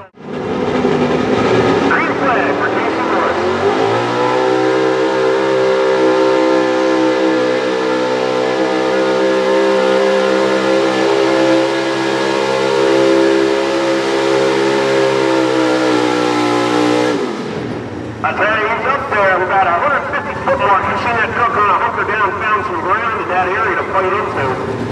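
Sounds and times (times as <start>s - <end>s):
diesel truck engine high-revving: 0.0s - 24.9s.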